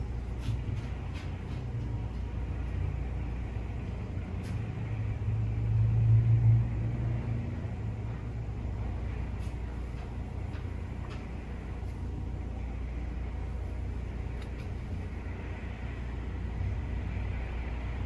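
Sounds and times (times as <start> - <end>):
vehicle rumble with deep hum: 0.0 - 18.0.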